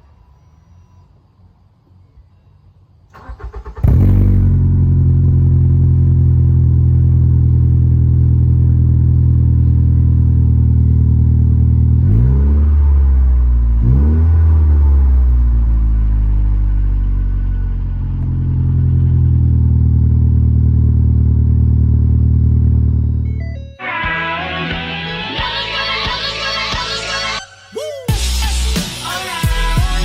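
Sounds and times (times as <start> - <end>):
car engine starting and idling: 3.1 - 27.4
engine revving: 3.2 - 23.4.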